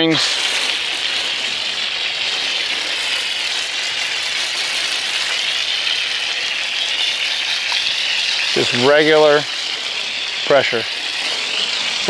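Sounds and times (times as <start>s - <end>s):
hose spraying water: 0.0s - 12.0s.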